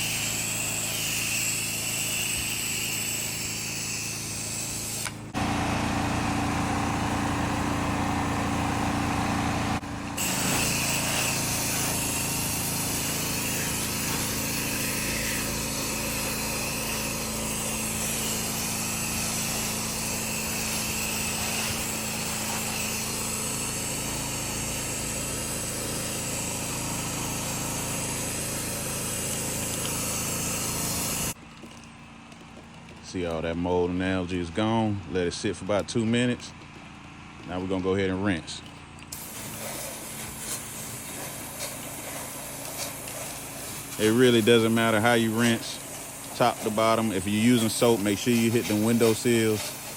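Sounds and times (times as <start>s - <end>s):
small engine running: 0.0s - 49.9s
water spraying hiss: 10.2s - 31.4s, 39.1s - 49.9s.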